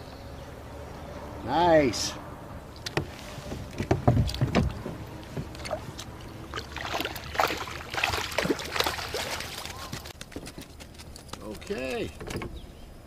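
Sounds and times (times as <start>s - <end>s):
water splashing: 2.7s - 10.1s
gear clattering against kayak: 2.8s - 6.4s, 8.3s - 12.7s
low thumps: 2.9s - 6.2s.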